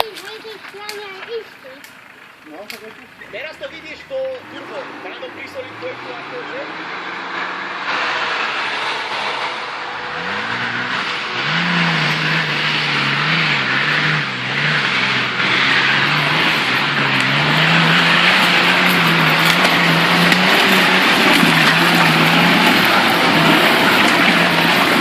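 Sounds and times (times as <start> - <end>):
turbocharged engine revving: 0.0 - 25.0
loud broad rushing noise: 6.8 - 14.0.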